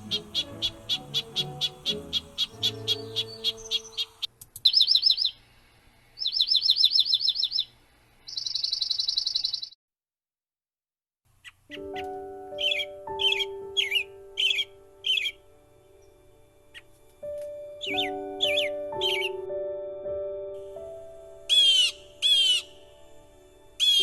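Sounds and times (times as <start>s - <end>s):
background music: 0.0s - 4.3s, 11.7s - 24.0s
songbird chip notes and trills: 0.0s - 5.4s, 11.7s - 24.0s.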